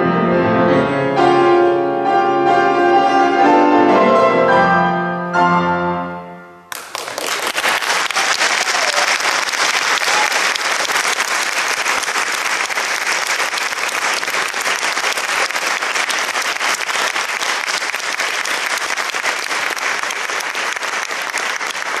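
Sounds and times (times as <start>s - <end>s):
audience applauding: 6.7s - 22.0s.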